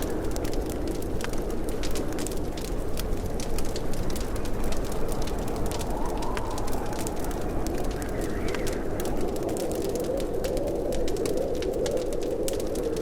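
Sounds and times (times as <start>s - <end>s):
low rush of burning: 0.0s - 13.0s
wood fire crackling: 0.0s - 13.0s.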